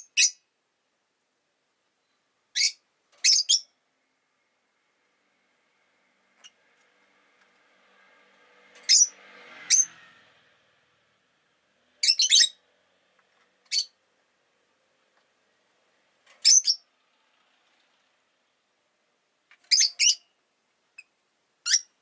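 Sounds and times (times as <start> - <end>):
bird chirping high-pitched: 0.0 - 0.4, 2.0 - 3.8, 8.9 - 10.0, 12.0 - 12.6, 13.7 - 14.0, 16.4 - 16.9, 19.6 - 22.0.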